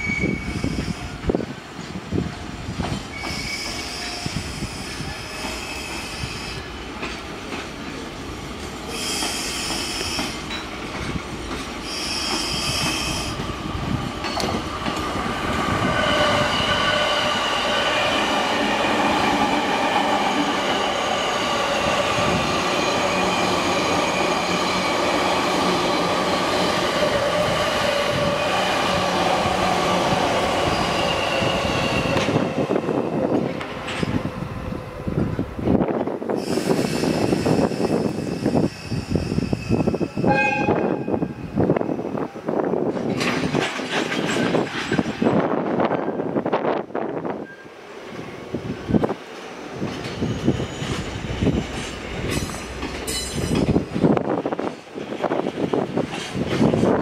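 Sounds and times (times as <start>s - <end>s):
train wheels squealing: 0.0s - 1.2s, 3.0s - 6.7s, 8.9s - 10.7s, 11.8s - 13.4s, 15.7s - 19.6s, 29.9s - 34.2s, 36.4s - 41.5s, 47.4s - 47.8s, 49.7s - 54.0s
electric train passing: 0.0s - 57.0s.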